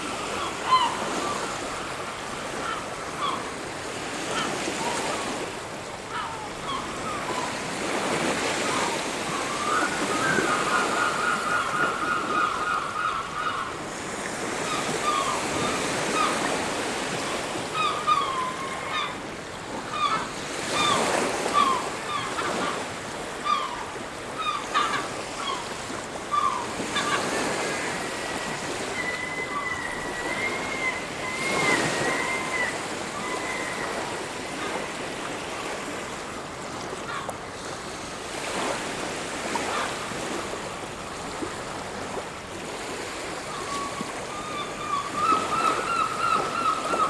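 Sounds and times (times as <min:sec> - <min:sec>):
birds calling: 0:00.0 - 0:05.4, 0:06.1 - 0:19.3, 0:19.9 - 0:36.0, 0:43.5 - 0:47.0
surf washing on beach: 0:00.0 - 0:06.1.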